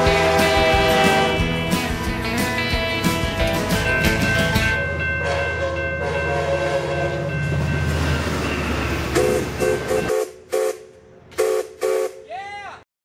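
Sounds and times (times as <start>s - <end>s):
steam locomotive whistle: 0.0s - 1.6s, 5.2s - 7.3s, 9.1s - 12.3s
train horn chord: 0.0s - 1.8s, 5.0s - 7.4s, 9.1s - 12.2s
train rumble: 0.0s - 12.1s.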